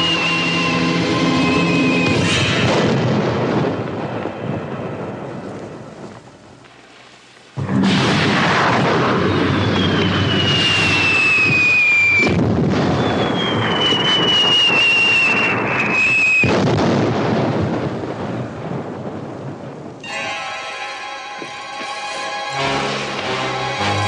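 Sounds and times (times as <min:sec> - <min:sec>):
music: 0:00.0 - 0:02.5, 0:20.0 - 0:24.0
rocket whistles falling in pitch: 0:00.0 - 0:02.6, 0:09.0 - 0:16.6
rumbling explosions: 0:00.0 - 0:20.0.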